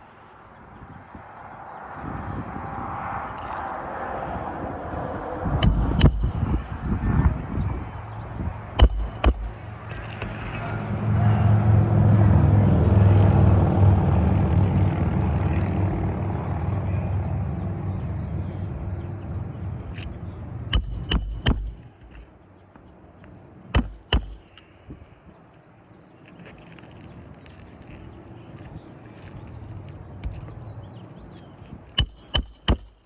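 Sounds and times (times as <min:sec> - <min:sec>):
passing vehicle engine rumble: 0:00.8 - 0:23.8
sharp metallic taps: 0:05.6 - 0:07.3, 0:08.7 - 0:10.9, 0:20.0 - 0:22.8, 0:23.7 - 0:25.0, 0:31.9 - 0:33.0.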